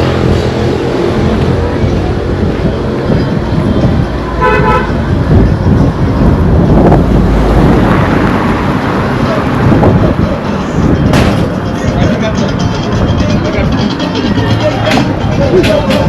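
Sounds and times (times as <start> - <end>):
road traffic passing: 0.0 - 16.0
car horn toot: 4.4 - 5.0.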